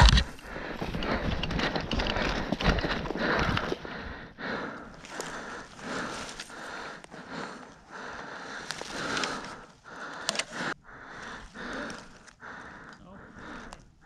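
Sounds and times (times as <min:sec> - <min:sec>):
sharp clicks: 0:00.0 - 0:03.8, 0:08.5 - 0:13.0
person breathing hard: 0:00.0 - 0:14.0.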